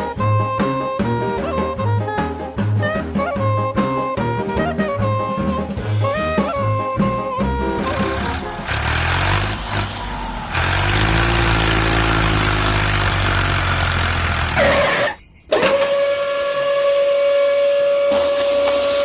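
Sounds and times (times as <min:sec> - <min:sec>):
motor humming and whirring: 0:06.1 - 0:14.6
steady whistle-like tone: 0:15.2 - 0:19.0.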